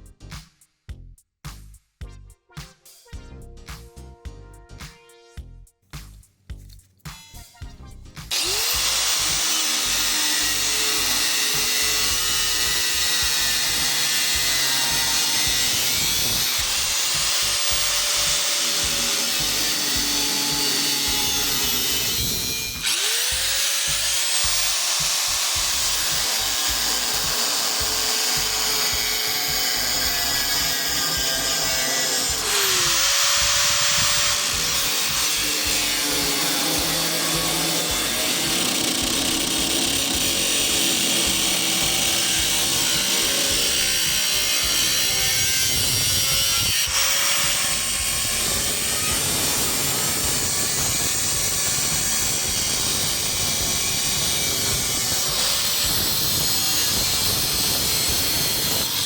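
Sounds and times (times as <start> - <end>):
electric power tool cutting: 8.3 - 59.0.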